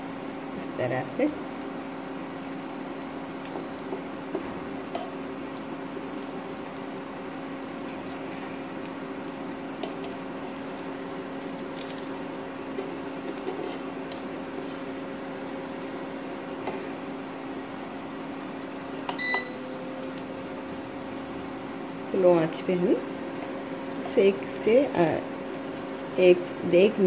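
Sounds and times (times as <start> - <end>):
batter sizzling in a pan: 0.0 - 27.0
electrical hum: 0.0 - 27.0.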